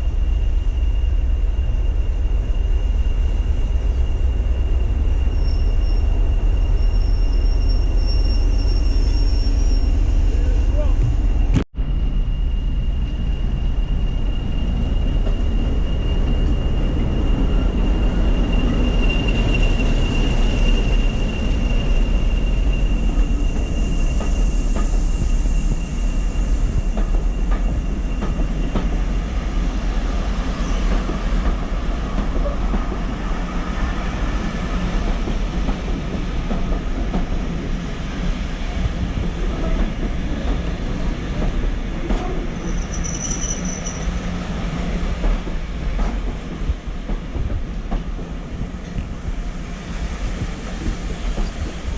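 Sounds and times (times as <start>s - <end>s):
train rumbling on track: 0.0s - 51.9s
high wheel squeal: 0.3s - 35.1s, 39.4s - 45.8s.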